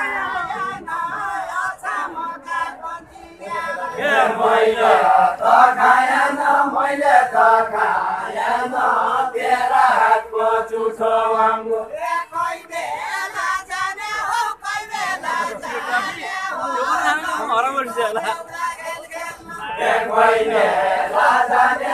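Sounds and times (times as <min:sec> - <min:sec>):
unaccompanied folk singing voices: 0:00.0 - 0:21.9.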